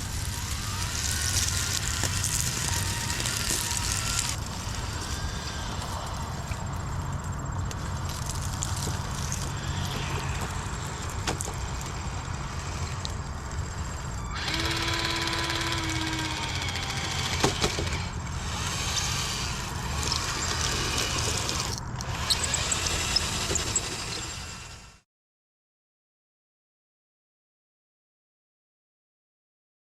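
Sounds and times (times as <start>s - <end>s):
small electric motors whining: 0.0s - 25.0s
steady low hum: 0.0s - 25.0s
sharp clicks: 1.0s - 24.2s.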